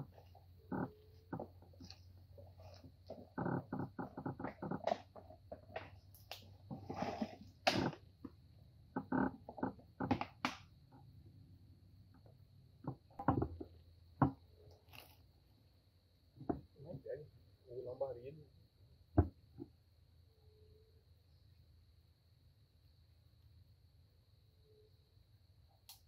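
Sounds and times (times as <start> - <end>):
crackling clicks and knocks: 0.0 - 11.1, 12.1 - 15.1.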